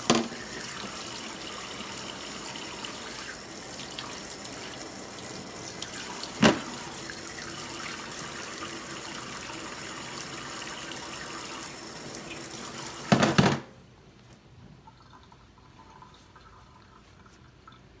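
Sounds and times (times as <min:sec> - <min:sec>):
faint water drips: 0:14.2 - 0:18.0.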